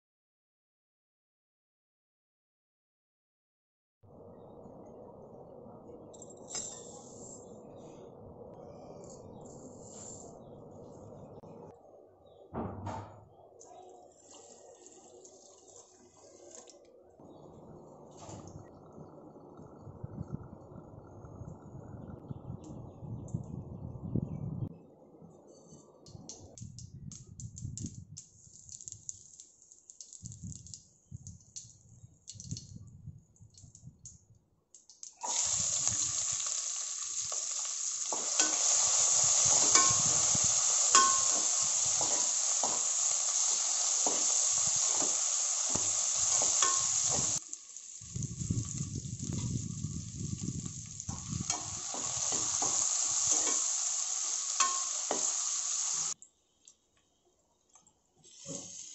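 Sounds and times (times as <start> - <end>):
seeds crackling in hot oil: 14.0 - 17.0, 26.3 - 32.8, 33.4 - 56.8, 58.2 - 58.9
onions sizzling in oil: 35.1 - 56.2, 58.2 - 58.9.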